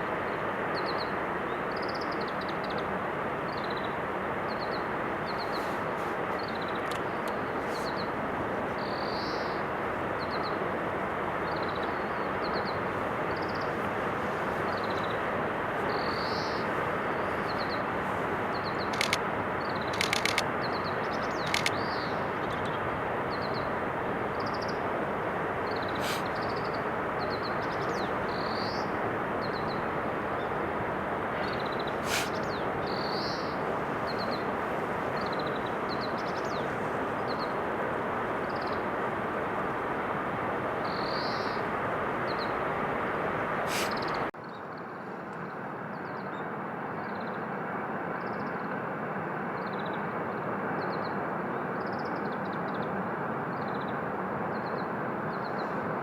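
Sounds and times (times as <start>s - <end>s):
rushing background noise: 2.6s - 44.3s
small birds chirping: 18.5s - 23.7s.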